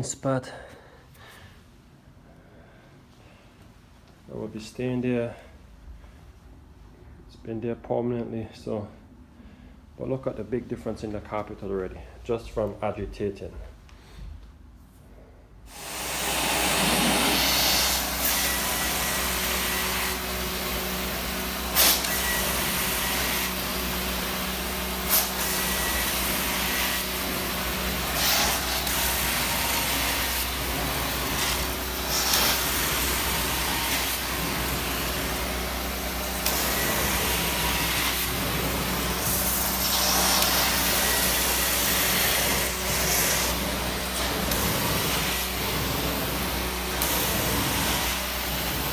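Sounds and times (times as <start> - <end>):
hissing surges: 15.7 - 20.0
carpet extraction machine suction roar: 15.7 - 48.9.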